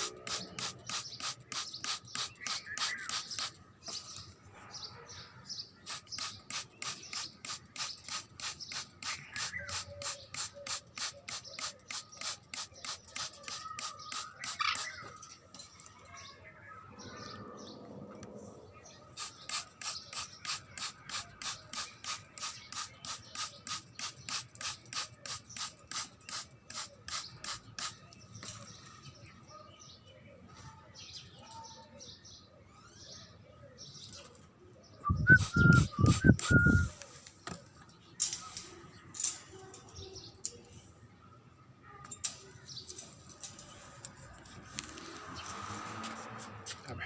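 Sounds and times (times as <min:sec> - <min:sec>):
spray bottle misting water: 0:00.0 - 0:04.0, 0:05.8 - 0:15.2, 0:19.2 - 0:28.2, 0:35.1 - 0:36.9.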